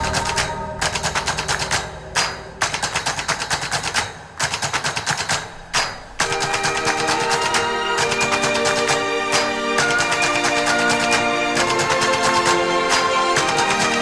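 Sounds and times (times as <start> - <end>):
held low tone: 0.0 - 3.6
rapid percussive hits: 0.0 - 14.0.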